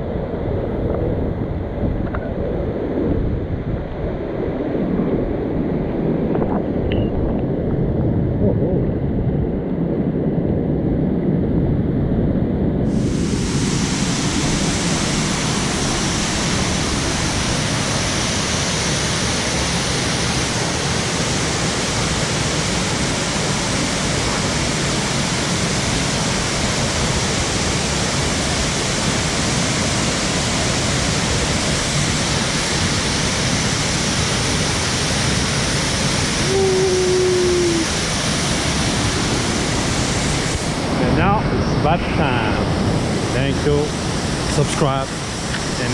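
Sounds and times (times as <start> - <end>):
brief steady tone: 6.3 - 7.8
waterfall rushing: 12.9 - 45.9.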